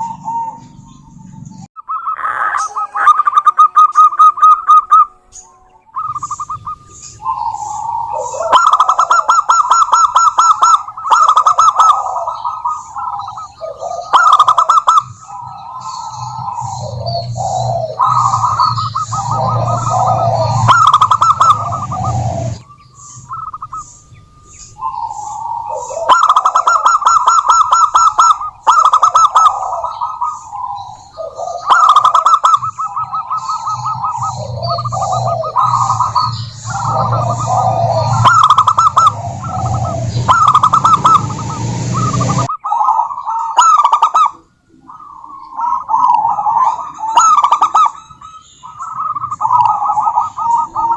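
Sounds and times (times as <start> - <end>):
doves cooing: 0.0 - 50.9.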